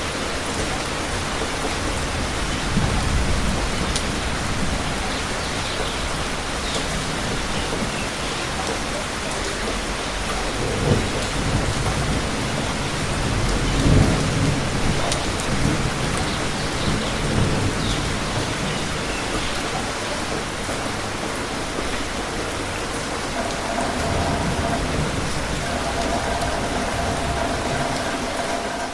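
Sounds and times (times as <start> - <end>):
heavy rain falling: 0.0 - 28.9
rolls of thunder: 10.4 - 18.8, 23.1 - 28.9.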